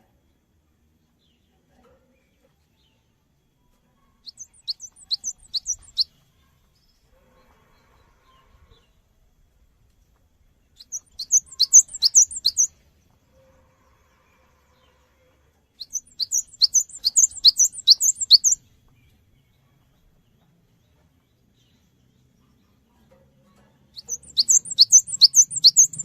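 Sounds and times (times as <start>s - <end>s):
bird singing high notes: 4.4s - 6.0s, 10.9s - 12.7s, 15.8s - 18.6s, 24.0s - 26.0s.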